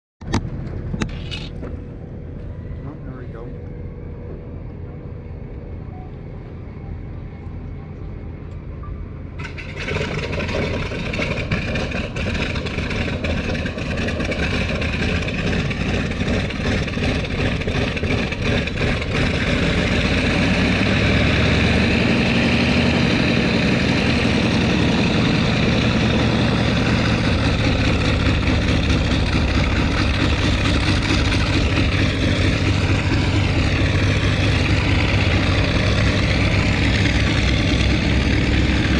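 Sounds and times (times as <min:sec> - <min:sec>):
radial aircraft engine running: 0:00.2 - 0:38.9
engine popping: 0:09.4 - 0:38.9.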